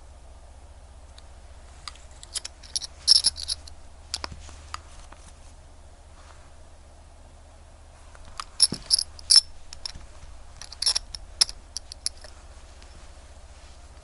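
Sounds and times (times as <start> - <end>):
low steady hum: 0.0 - 14.0
small metallic clicks and taps: 10.6 - 12.3.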